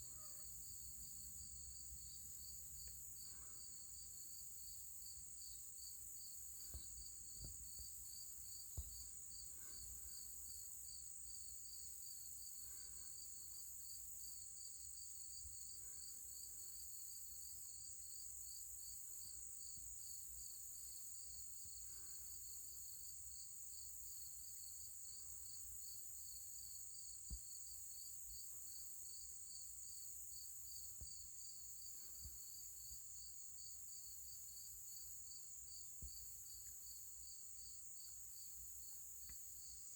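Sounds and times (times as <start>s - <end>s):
high insect buzz: 0.0s - 17.8s
insects trilling: 0.0s - 39.9s.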